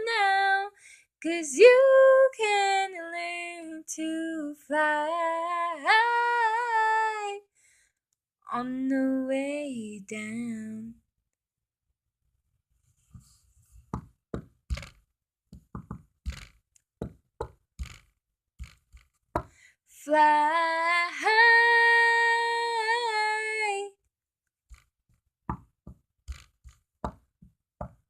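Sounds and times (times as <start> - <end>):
knocks and taps: 13.9 - 19.6, 25.5 - 28.0.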